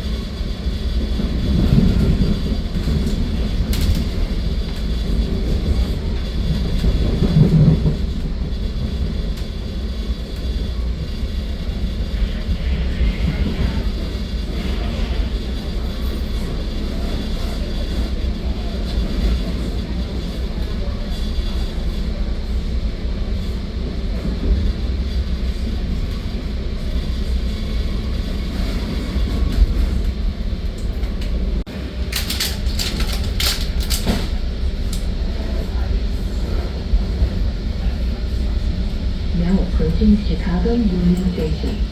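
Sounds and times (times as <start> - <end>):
train rumbling along track: 0.0 - 41.9
sharp clicks and rattling: 32.1 - 34.3.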